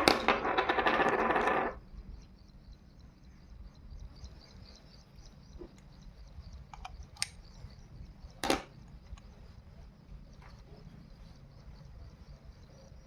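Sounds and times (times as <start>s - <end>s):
faint insect chirping: 0.0s - 13.0s
tools clicking and knocking: 8.4s - 8.7s.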